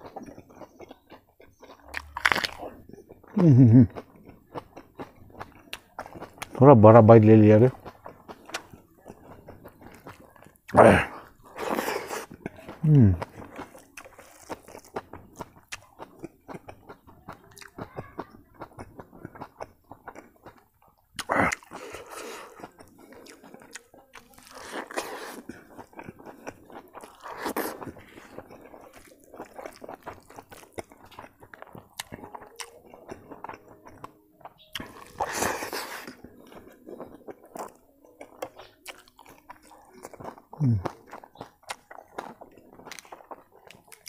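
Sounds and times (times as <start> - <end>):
person chewing food: 0.0 - 44.0.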